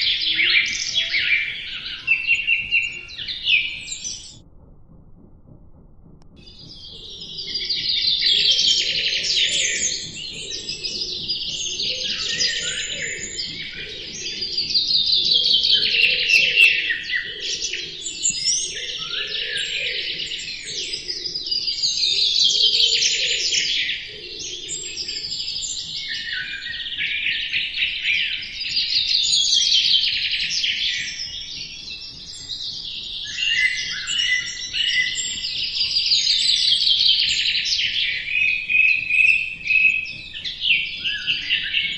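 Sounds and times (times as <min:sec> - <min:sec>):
trilling bird song phrases: 0:00.0 - 0:04.4, 0:06.4 - 0:41.9
faint low pulsing sound: 0:00.4 - 0:16.4
songbirds chirping: 0:06.4 - 0:41.9.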